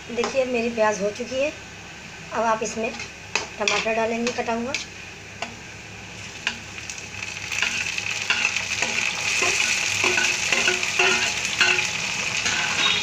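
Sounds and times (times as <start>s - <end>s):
onions sizzling in oil: 2.3s - 13.0s
metal spoon knocking: 9.4s - 11.8s.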